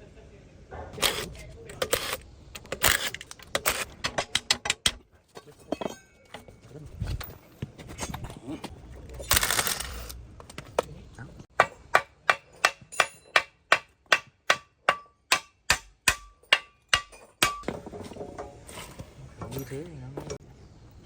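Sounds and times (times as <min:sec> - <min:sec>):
hammer striking metal: 0:11.6 - 0:18.6.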